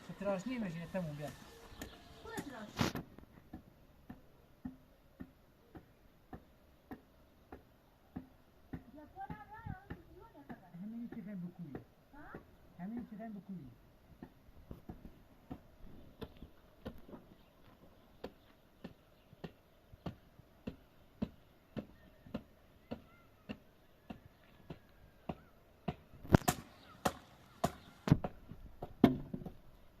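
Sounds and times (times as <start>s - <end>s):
hand tool striking wood: 0.9s - 13.2s, 18.2s - 29.6s.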